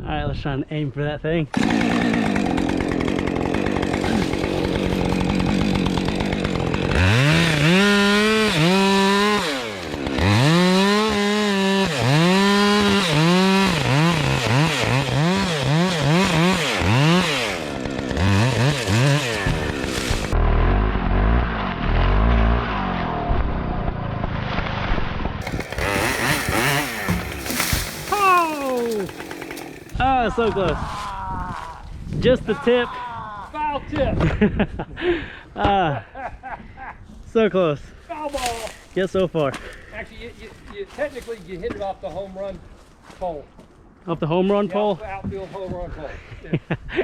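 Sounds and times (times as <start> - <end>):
chainsaw cutting wood: 1.5 - 22.6, 25.4 - 30.0.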